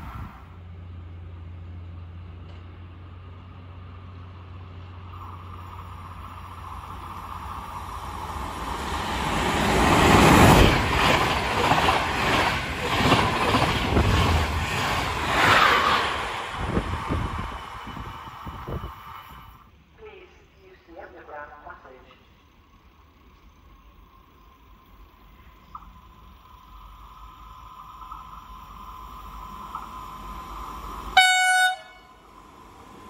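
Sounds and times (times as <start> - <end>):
electric train passing at speed: 0.0 - 33.0
rapid train wheel beats: 6.2 - 19.2.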